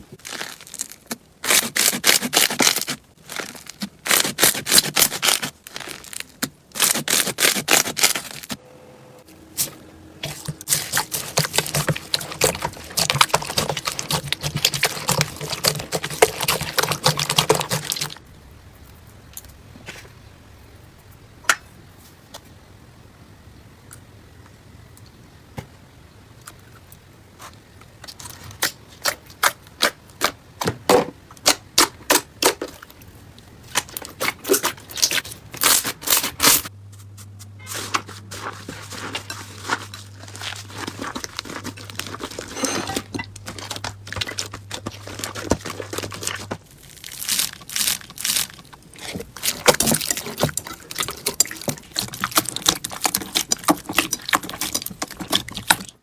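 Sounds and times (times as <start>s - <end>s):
slime crackling and popping: 0.2s - 8.6s, 10.2s - 18.2s, 43.4s - 56.0s.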